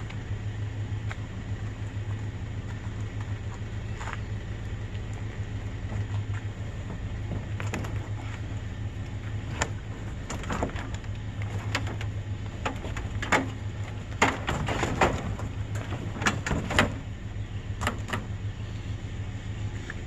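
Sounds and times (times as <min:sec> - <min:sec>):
vehicle engine running: 0:00.0 - 0:20.0
irregular clicks and clunks: 0:05.0 - 0:18.5.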